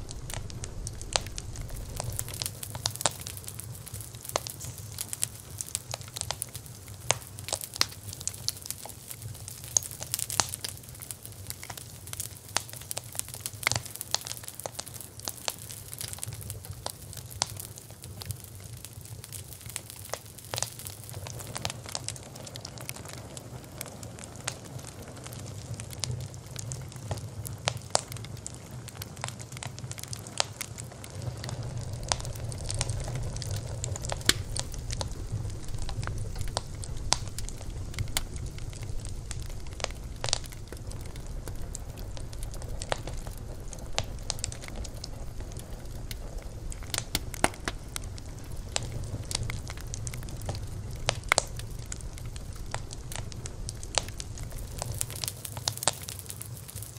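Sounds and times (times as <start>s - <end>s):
low steady rumble: 0.0s - 7.3s, 30.9s - 56.0s
wood fire crackling: 0.0s - 56.9s.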